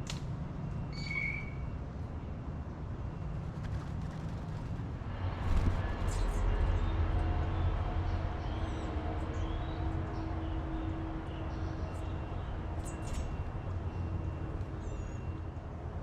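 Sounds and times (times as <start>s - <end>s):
steady background hum: 0.0s - 16.0s
faint bird chirps: 0.8s - 1.8s.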